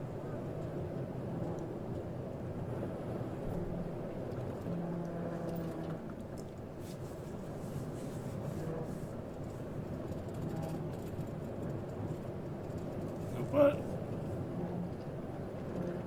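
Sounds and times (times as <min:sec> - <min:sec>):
road rumble: 0:13.0 - 0:14.4.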